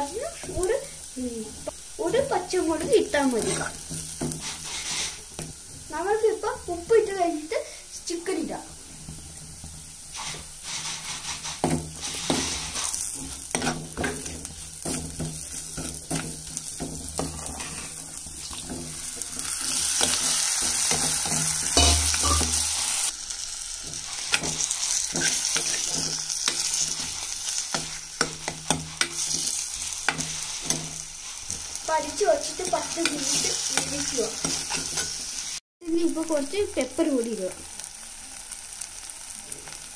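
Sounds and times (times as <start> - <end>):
onions frying in a pot: 0.0 - 39.9
steel spoon scraping a pot: 3.4 - 5.2, 10.1 - 22.7, 23.8 - 31.6, 33.0 - 35.4.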